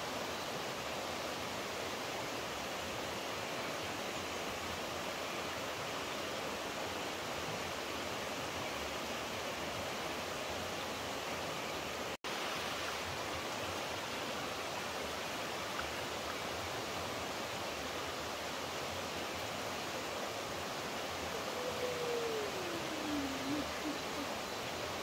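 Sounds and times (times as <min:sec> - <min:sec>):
water rushing: 0:00.0 - 0:25.0
faint tone: 0:21.3 - 0:24.6.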